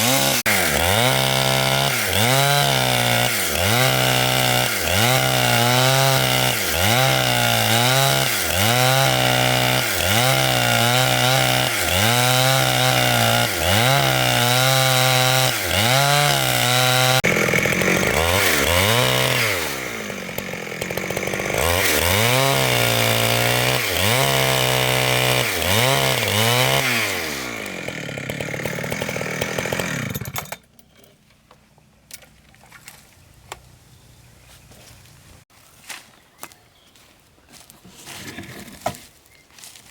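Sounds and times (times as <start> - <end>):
chainsaw cutting thick wood: 0.0 - 30.6.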